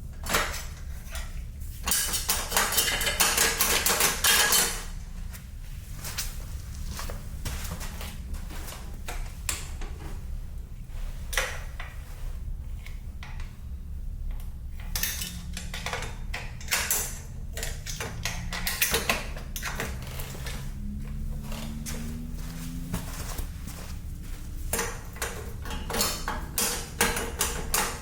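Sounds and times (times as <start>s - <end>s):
steady low hum: 0.0s - 28.0s
metal tools clinking and knocking: 1.8s - 5.0s.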